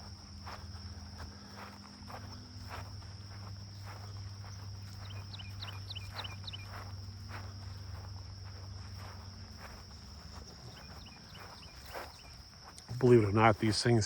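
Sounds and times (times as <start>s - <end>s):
footsteps on a trail: 0.0s - 14.0s
high insect drone: 0.0s - 14.0s
small bird chirping: 3.8s - 6.9s, 10.3s - 12.4s.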